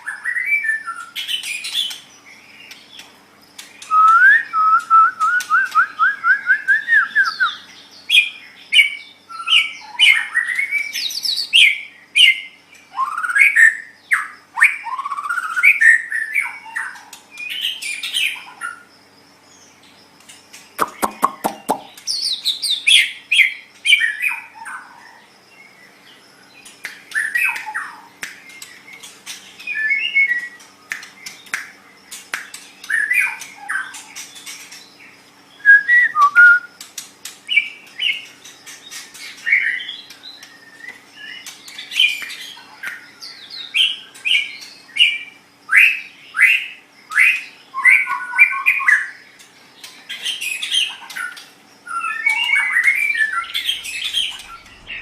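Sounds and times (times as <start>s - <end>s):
bird singing whistled phrases: 3.8s - 18.4s, 29.6s - 30.6s, 35.6s - 36.8s, 51.9s - 55.0s
sharp clicks: 20.3s - 22.1s, 30.9s - 32.9s.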